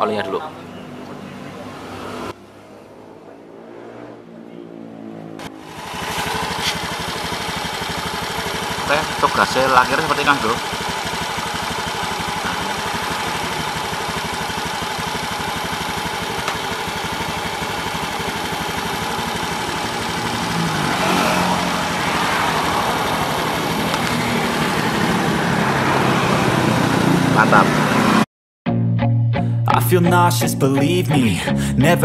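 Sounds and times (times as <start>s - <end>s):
scooter engine idling: 5.4s - 28.1s
background music: 28.7s - 32.0s.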